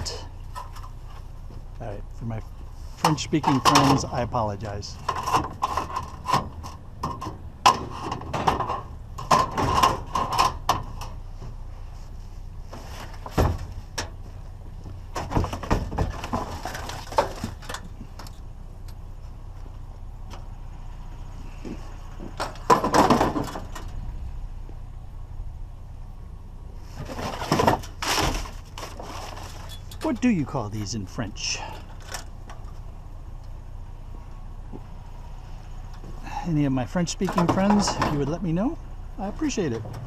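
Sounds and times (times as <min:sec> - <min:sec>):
scrap knocking and clattering: 0:04.9 - 0:11.2, 0:12.7 - 0:18.3, 0:21.6 - 0:24.0, 0:26.9 - 0:30.3.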